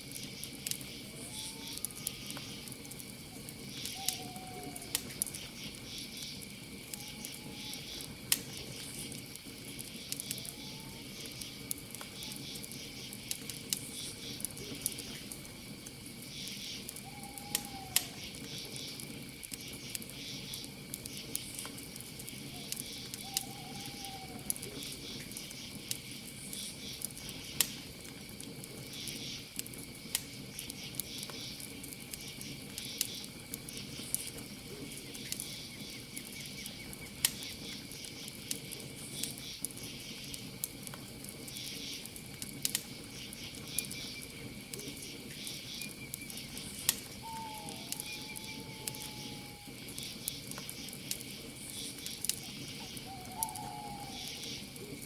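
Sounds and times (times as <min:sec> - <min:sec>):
campfire crackling and popping: 0:00.0 - 0:55.0
crickets chirping: 0:00.0 - 0:55.0
faint arching calls: 0:01.0 - 0:09.2, 0:09.9 - 0:12.8, 0:16.4 - 0:19.0, 0:22.3 - 0:25.2, 0:44.8 - 0:51.0, 0:51.7 - 0:55.0.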